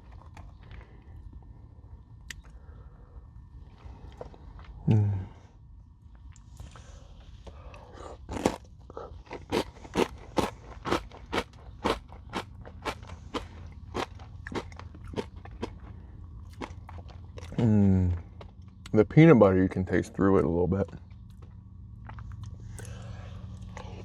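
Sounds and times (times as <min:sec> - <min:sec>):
granola bar being chewed: 0:08.2 - 0:17.6.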